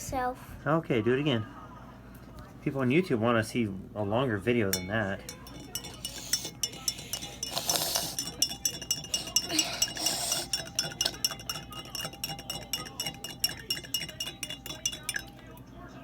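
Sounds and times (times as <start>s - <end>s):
spoon clinking against cup: 4.6s - 15.6s.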